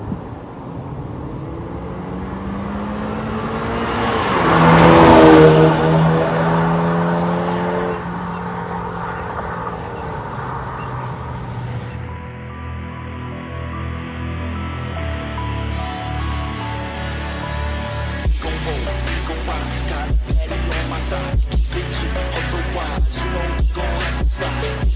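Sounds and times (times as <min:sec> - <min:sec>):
car engine accelerating: 0:00.0 - 0:12.3
steady exhaust note: 0:00.0 - 0:12.5.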